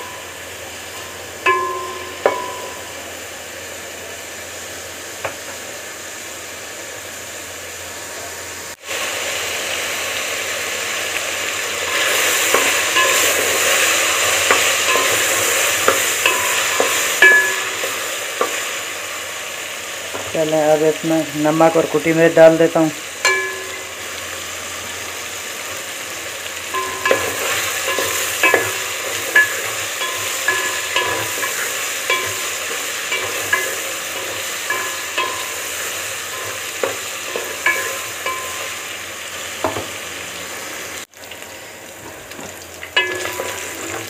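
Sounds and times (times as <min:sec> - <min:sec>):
chicken sizzling in a pot: 0:00.0 - 0:44.0
spoon clinking against pot: 0:14.4 - 0:18.6, 0:26.8 - 0:35.7, 0:36.3 - 0:38.8.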